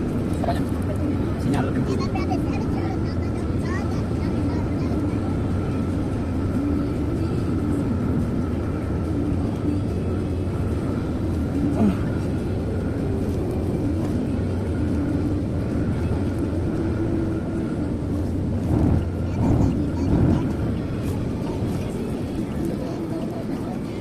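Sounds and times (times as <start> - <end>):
car engine and tyre hum: 5.1 - 24.0.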